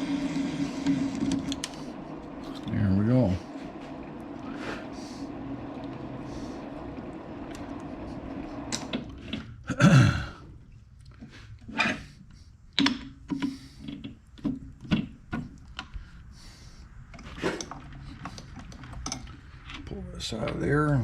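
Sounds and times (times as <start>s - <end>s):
metal clanks and clicks: 17.2s - 20.6s.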